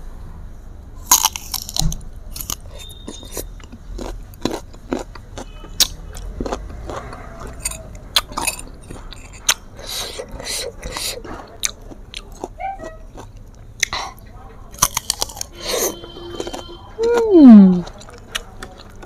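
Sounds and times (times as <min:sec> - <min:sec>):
crunchy chewing: 0:01.0 - 0:19.0
crisp bite into mango: 0:01.1 - 0:03.5.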